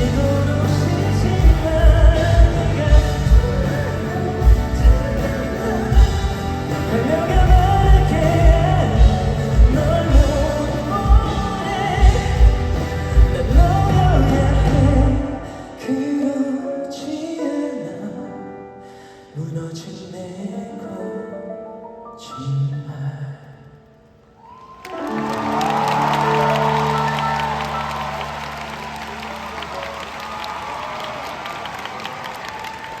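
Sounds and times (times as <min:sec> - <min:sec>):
drums keeping steady beat: 0:00.0 - 0:15.2
live band playing pop ballad: 0:00.0 - 0:18.2, 0:24.9 - 0:31.0.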